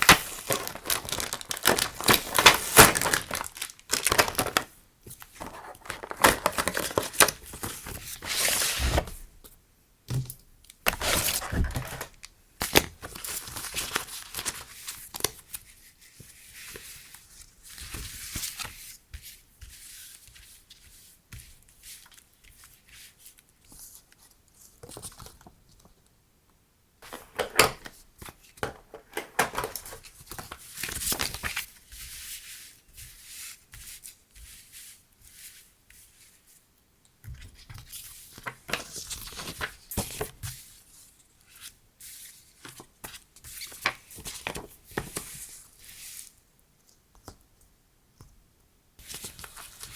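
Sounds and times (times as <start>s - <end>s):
packaging crinkling and tearing: 0.0s - 4.7s, 5.4s - 9.1s, 10.8s - 15.3s, 28.6s - 31.7s.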